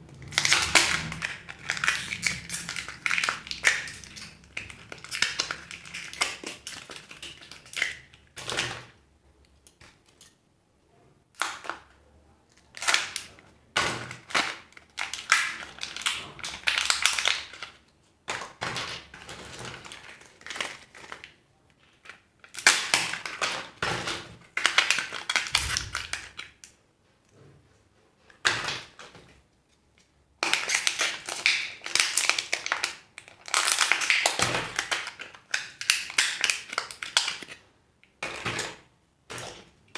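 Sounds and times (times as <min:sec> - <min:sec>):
plastic wrappers crinkling: 0:00.2 - 0:08.9, 0:12.5 - 0:26.7, 0:30.4 - 0:37.6.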